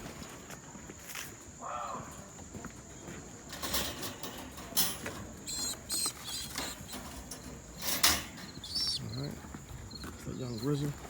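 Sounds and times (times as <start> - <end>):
pigeons scuffling: 0.0 - 1.6, 2.2 - 11.0
short high squeaks: 5.4 - 9.0.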